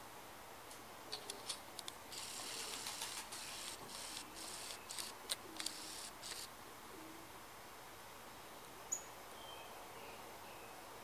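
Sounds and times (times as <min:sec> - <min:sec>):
bird sharp high clicks: 0:01.1 - 0:06.5
bird rasping chatter: 0:02.2 - 0:06.5.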